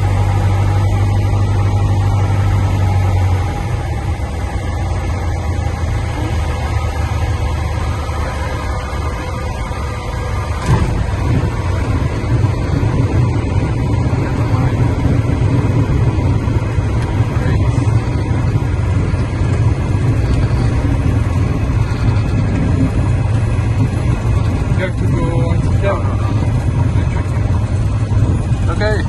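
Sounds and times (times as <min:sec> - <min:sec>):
propeller plane engine droning: 0:00.0 - 0:29.0
sharp thump: 0:10.6 - 0:11.2.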